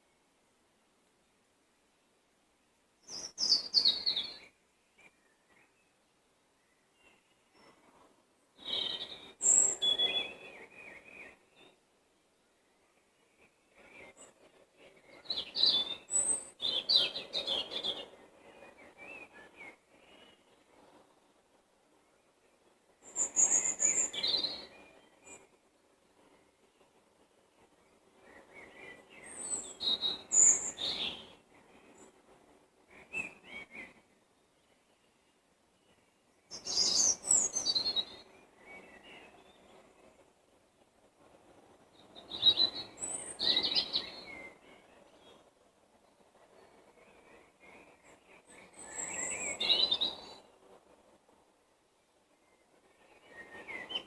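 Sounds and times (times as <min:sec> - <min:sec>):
songbirds singing: 0:03.0 - 0:40.4, 0:41.2 - 0:51.4, 0:52.0 - 0:54.0.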